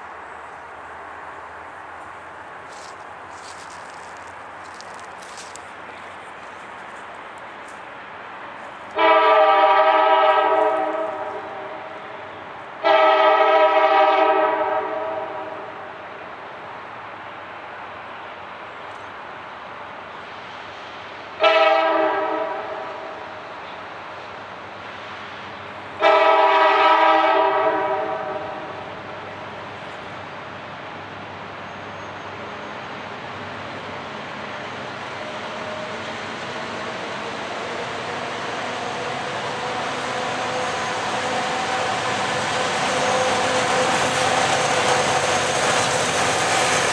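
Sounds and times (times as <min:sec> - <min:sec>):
freight train rumble: 0:00.0 - 0:46.9
locomotive air horn blasts: 0:09.0 - 0:12.2, 0:12.8 - 0:15.8, 0:21.4 - 0:23.3, 0:26.0 - 0:28.9.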